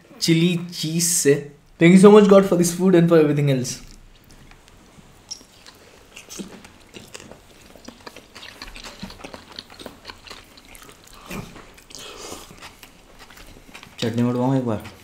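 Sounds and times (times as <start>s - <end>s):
mouth chewing clicks and smacks: 3.8s - 15.0s.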